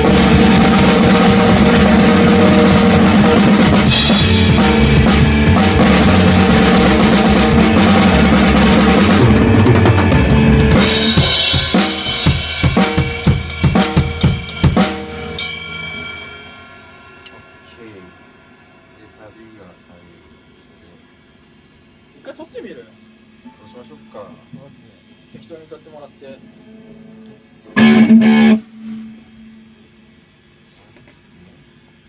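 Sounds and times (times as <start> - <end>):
ringing cymbal: 0.0 - 9.2, 10.8 - 24.5
rock band playing: 0.0 - 20.7, 26.7 - 29.6
separate drum hits: 0.0 - 21.7.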